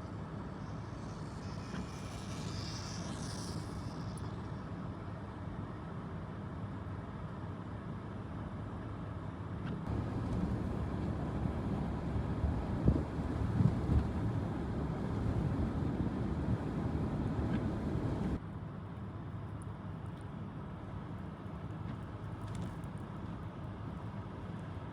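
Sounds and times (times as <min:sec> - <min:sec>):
low vehicle rumble: 0:09.9 - 0:18.4.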